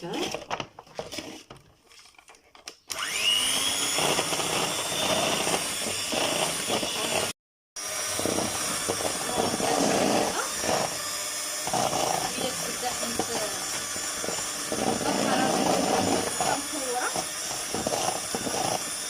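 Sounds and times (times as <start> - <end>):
electric mixer whining: 2.9 - 19.0.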